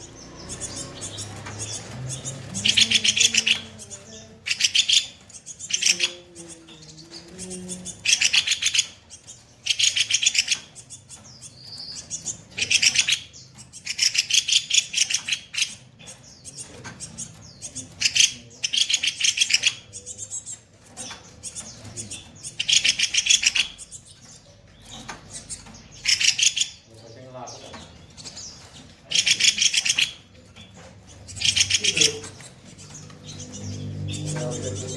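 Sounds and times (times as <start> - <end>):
songbird chattering bursts: 25.3 - 34.9.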